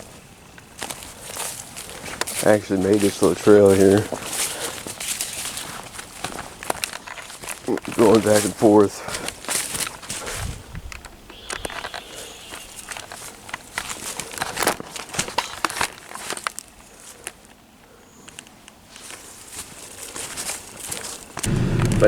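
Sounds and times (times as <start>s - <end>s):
footsteps crunching on forest floor: 0.8s - 10.5s.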